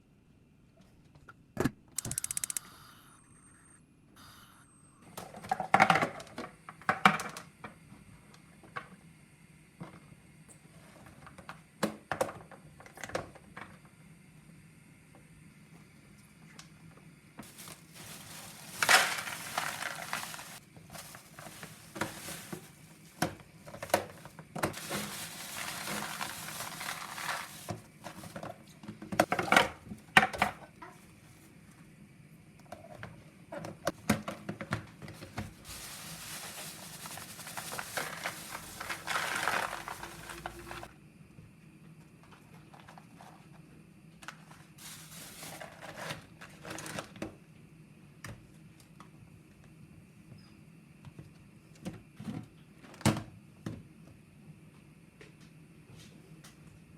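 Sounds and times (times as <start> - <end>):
rustling: 17.4 - 23.2, 24.1 - 28.4, 35.2 - 40.9, 44.8 - 46.1.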